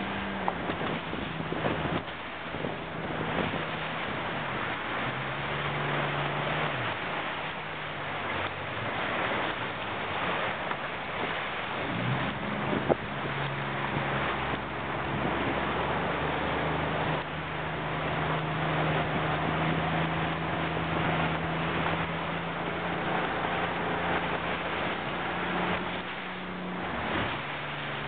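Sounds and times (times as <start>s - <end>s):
low motor hum: 0.0s - 28.0s
water rushing past a boat: 0.0s - 28.0s
wind buffeting microphone: 0.0s - 28.0s.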